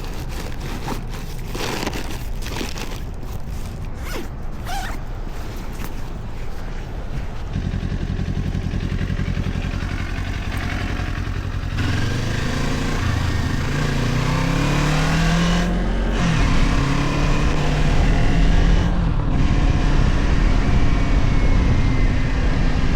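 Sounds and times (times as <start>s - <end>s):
motorcycle engine revving: 7.5s - 22.9s
rushing wind noise: 16.0s - 22.9s.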